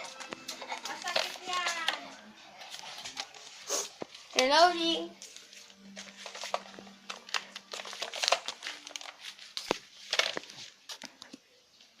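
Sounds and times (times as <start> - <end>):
crinkling rustle of handling: 2.6 - 11.4.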